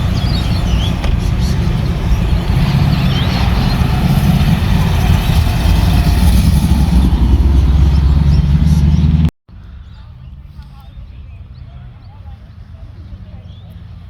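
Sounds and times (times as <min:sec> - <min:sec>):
car engine running: 0:00.0 - 0:09.3.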